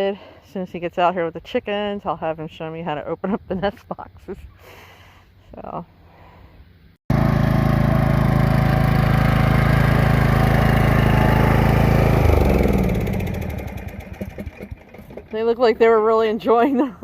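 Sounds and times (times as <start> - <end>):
riding lawnmower engine running: 7.1 - 16.7.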